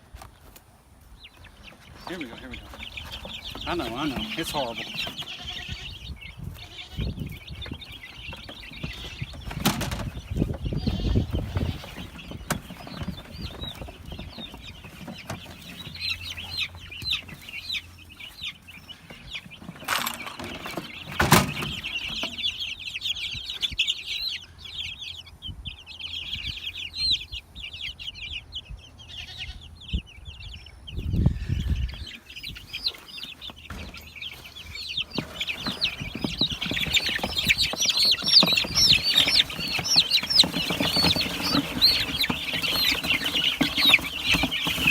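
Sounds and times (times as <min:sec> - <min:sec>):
chicks peeping: 0:00.0 - 0:44.9
wings flapping: 0:35.1 - 0:44.9.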